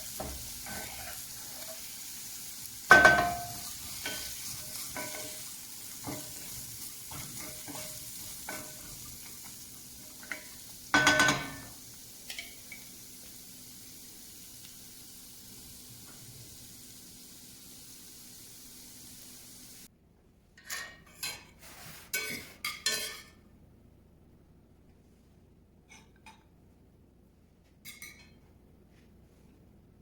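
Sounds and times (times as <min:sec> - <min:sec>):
food sizzling in a pan: 0:00.0 - 0:19.9
metal utensil clinking against pan: 0:02.9 - 0:06.5, 0:10.2 - 0:11.7, 0:12.3 - 0:12.9.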